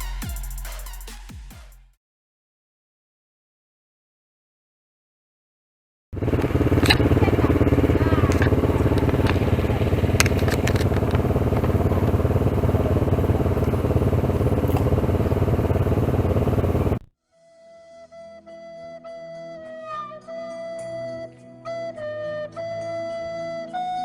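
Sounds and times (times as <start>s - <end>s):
motorcycle engine running: 6.2s - 17.1s
sharp clicks: 8.3s - 11.7s
faint flute music: 17.2s - 24.0s.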